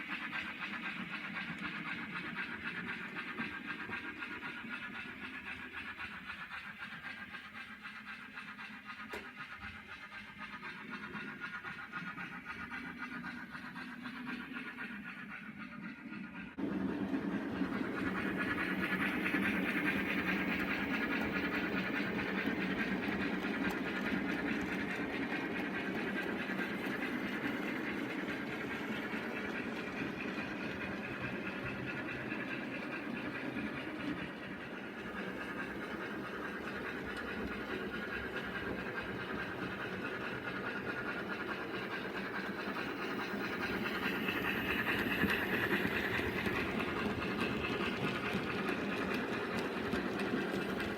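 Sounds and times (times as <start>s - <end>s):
wheels running on rails: 0.0s - 50.9s
model train motor whine: 17.6s - 50.9s.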